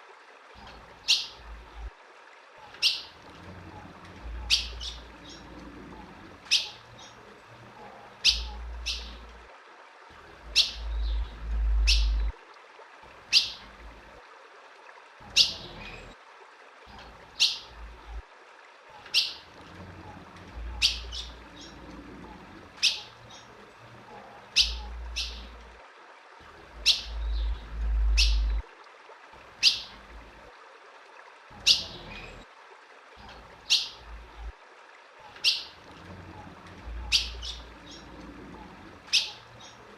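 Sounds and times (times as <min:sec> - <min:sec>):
bird chip calls: 0:06.5 - 0:07.2, 0:08.2 - 0:09.2, 0:10.5 - 0:12.3, 0:20.7 - 0:21.8, 0:22.8 - 0:23.5, 0:24.5 - 0:25.6, 0:26.8 - 0:28.6, 0:29.6 - 0:29.9, 0:35.4 - 0:35.8, 0:37.0 - 0:38.1, 0:39.1 - 0:39.8
low rumbles: 0:10.3 - 0:12.4, 0:26.5 - 0:28.6.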